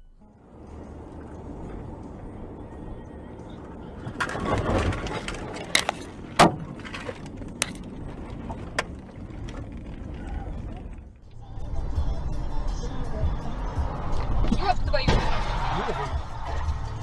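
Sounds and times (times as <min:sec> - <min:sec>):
car road noise: 0:00.0 - 0:17.0
road collision bangs and cracks: 0:03.6 - 0:11.2, 0:13.8 - 0:17.0.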